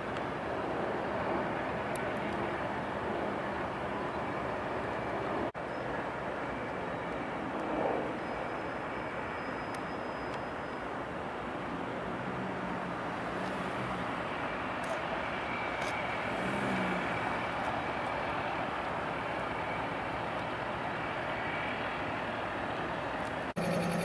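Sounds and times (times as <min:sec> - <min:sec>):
large vehicle passing: 0:12.0 - 0:18.6.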